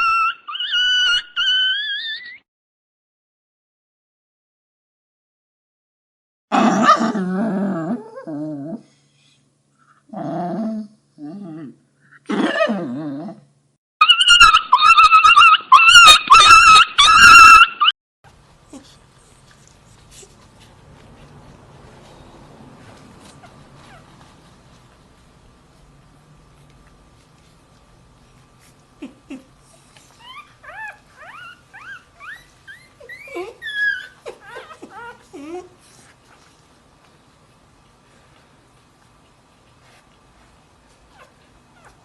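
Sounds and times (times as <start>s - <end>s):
puppy whimpering and crying: 0.0s - 2.5s, 6.5s - 8.9s, 10.1s - 13.4s, 14.0s - 17.9s, 23.2s - 24.2s, 28.6s - 36.4s, 41.1s - 42.0s.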